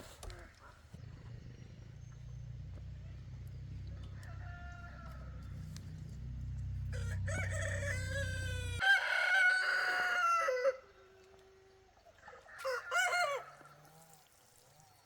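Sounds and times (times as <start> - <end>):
rooster crowing: 4.1 - 5.4, 6.8 - 10.8, 12.6 - 13.6.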